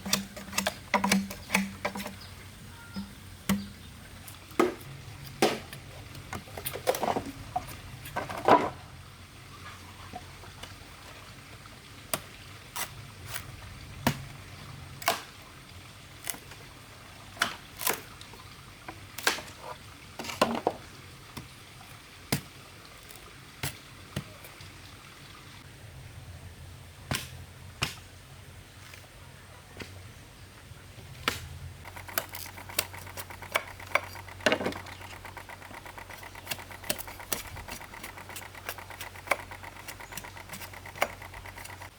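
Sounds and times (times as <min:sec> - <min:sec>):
sharp knocks and taps: 0:00.0 - 0:02.2, 0:03.0 - 0:03.8.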